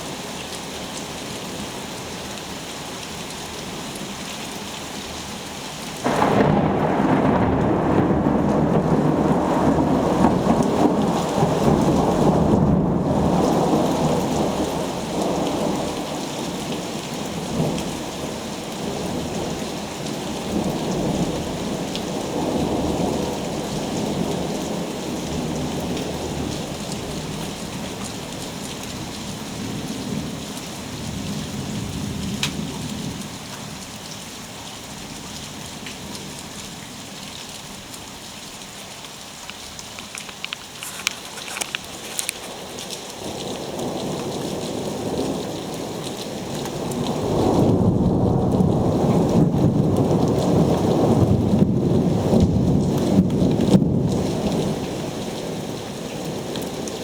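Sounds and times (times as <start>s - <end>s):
steady rain falling: 0.0s - 57.0s
rolling thunder: 6.0s - 16.1s, 43.2s - 55.1s.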